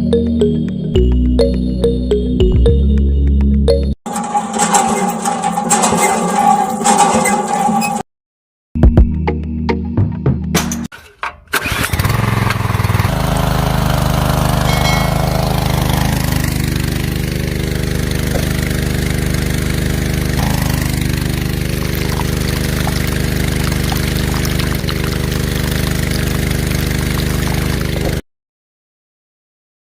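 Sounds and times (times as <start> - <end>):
engine starting clicks: 4.1 - 8.0, 11.0 - 13.1
diesel engine running: 11.6 - 28.2.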